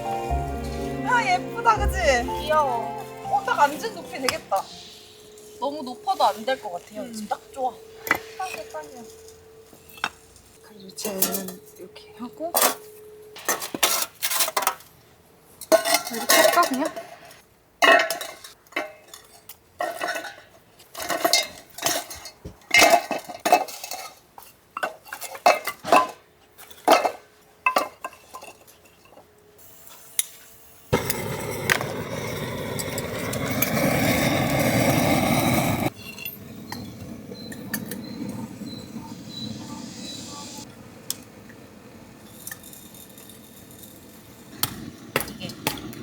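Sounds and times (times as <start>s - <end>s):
loud steady rushing noise: 37.4s - 41.0s.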